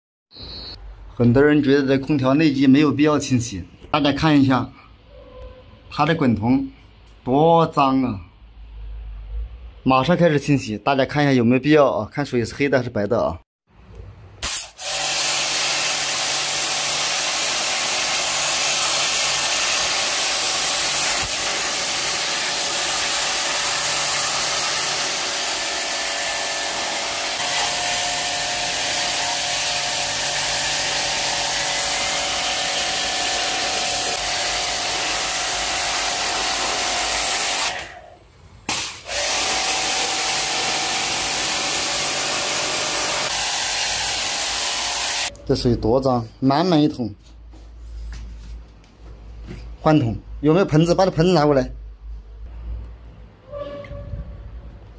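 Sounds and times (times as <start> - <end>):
pressure-washer jet hissing: 14.4 - 37.9, 38.7 - 45.3.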